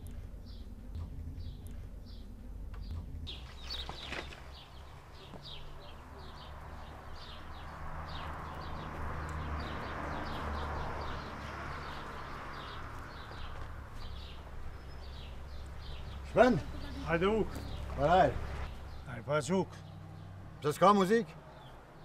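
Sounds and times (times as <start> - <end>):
low outdoor rumble: 0.0 - 19.4
small birds chirping: 0.0 - 22.0.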